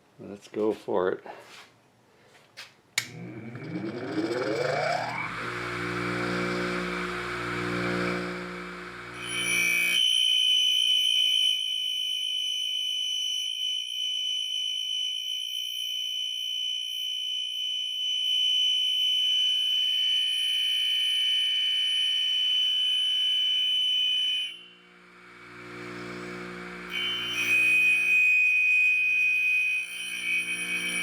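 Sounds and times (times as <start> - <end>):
grinder high-pitched squeal: 3.3 - 11.6, 25.2 - 31.0.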